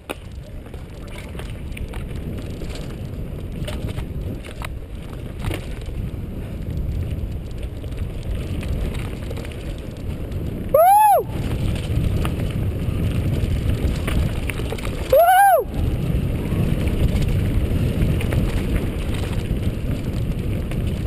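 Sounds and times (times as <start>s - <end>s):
bike clicks and knocks: 0.0s - 10.5s, 11.4s - 15.1s
wind rushing over microphone: 0.0s - 21.0s.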